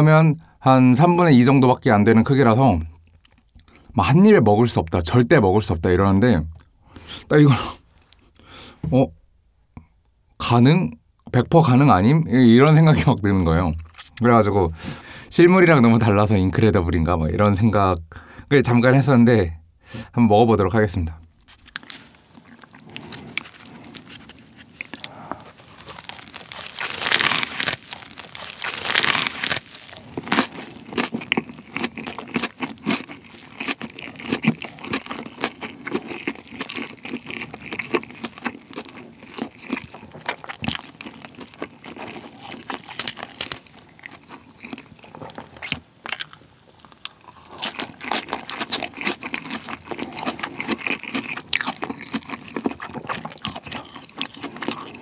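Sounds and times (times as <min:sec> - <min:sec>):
person crunching fried chicken: 0:21.4 - 0:55.0.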